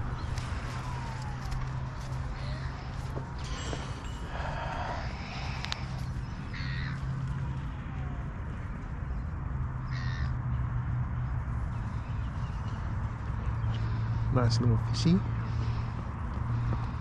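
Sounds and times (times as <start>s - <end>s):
bird cawing: 0.0s - 8.2s, 9.8s - 10.6s, 15.3s - 17.0s.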